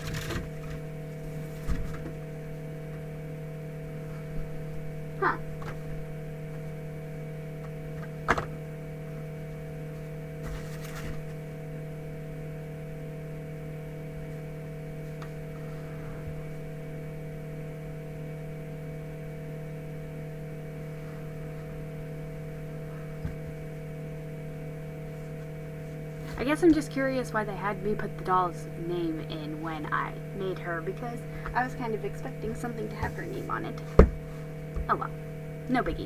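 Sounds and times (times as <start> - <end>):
electrical hum: 0.0 - 36.0
rustling: 10.4 - 11.4
handling taps: 33.0 - 35.0.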